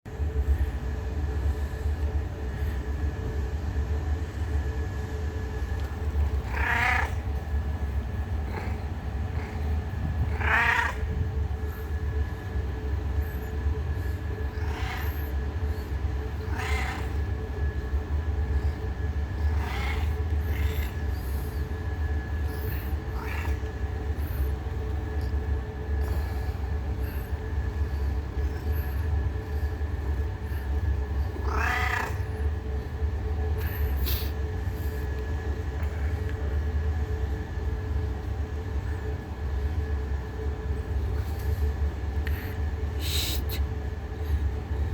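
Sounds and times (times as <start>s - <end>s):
faint steady hum: 0.1s - 44.9s
steady low rumble: 0.1s - 44.9s
cat meowing: 6.4s - 7.3s, 10.2s - 11.2s, 14.5s - 15.3s, 16.4s - 17.3s, 19.4s - 21.0s, 31.3s - 32.4s.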